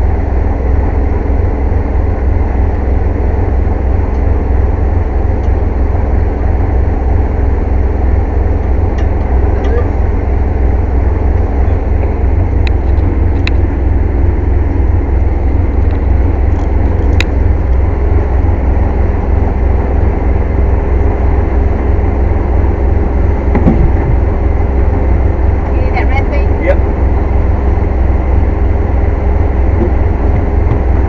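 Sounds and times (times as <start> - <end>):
air compressor running: 26.8 - 31.0.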